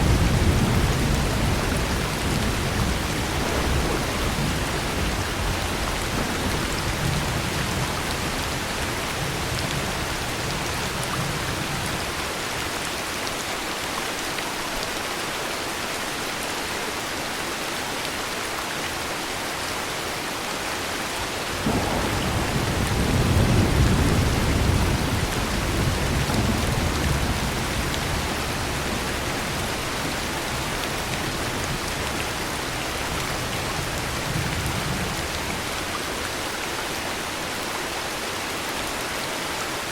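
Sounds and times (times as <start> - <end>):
thunder rumbling: 0.0 - 11.9, 21.2 - 35.9
heavy rain: 0.0 - 39.9.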